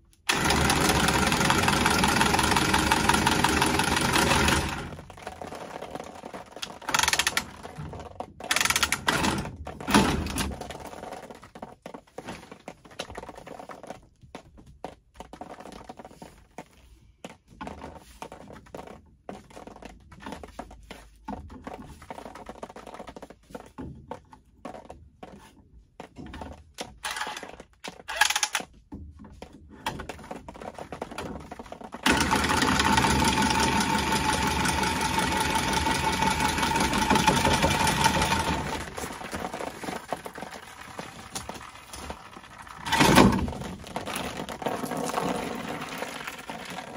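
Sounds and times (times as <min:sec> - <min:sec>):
tubing cutter whirring: 0:00.2 - 0:05.0, 0:32.0 - 0:43.5.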